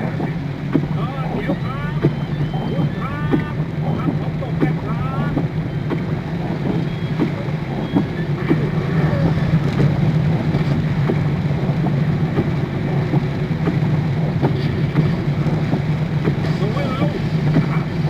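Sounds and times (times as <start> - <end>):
car engine hum: 0.0 - 18.0
heavy rain on car: 0.0 - 18.0.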